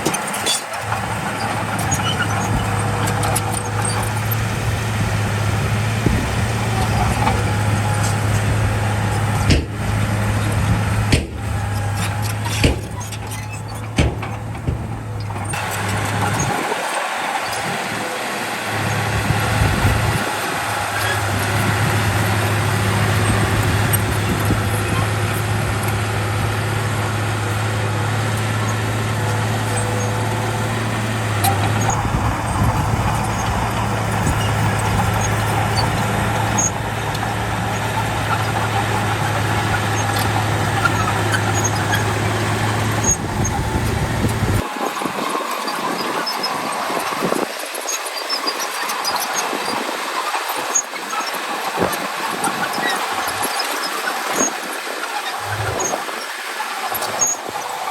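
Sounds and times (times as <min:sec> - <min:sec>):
metallic ticks and squeaks: 0:00.0 - 0:04.5, 0:09.1 - 0:16.6, 0:27.6 - 0:56.0, 0:56.9 - 0:57.8
heavy diesel machinery running: 0:00.0 - 0:57.9
mechanical clatter: 0:09.4 - 0:16.7.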